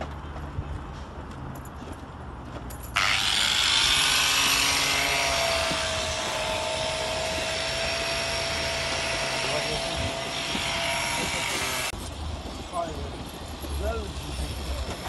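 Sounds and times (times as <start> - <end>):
motor running with high whine: 3.0 - 11.9.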